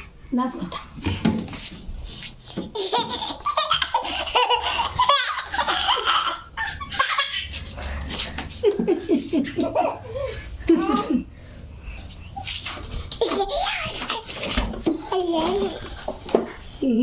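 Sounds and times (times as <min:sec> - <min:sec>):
small child laughing: 0:02.7 - 0:11.3, 0:13.2 - 0:14.4.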